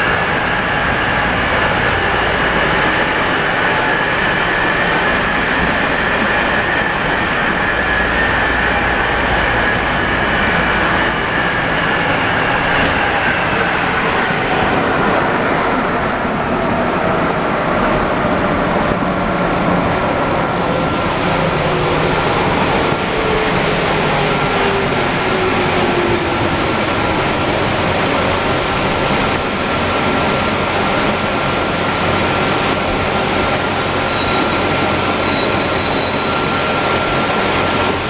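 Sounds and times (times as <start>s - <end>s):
metro train rolling: 0.0s - 38.0s.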